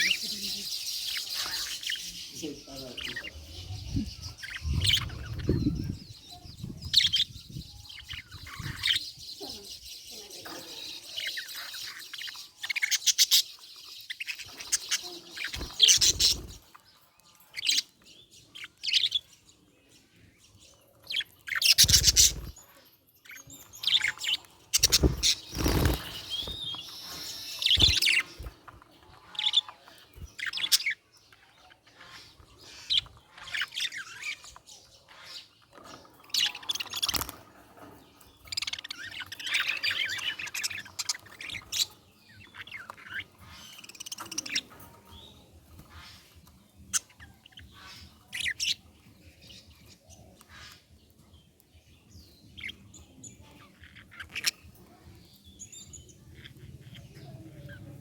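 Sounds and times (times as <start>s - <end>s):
budgie chirping and chattering: 0.0s - 9.9s, 10.8s - 16.7s, 21.1s - 22.6s, 23.2s - 31.1s.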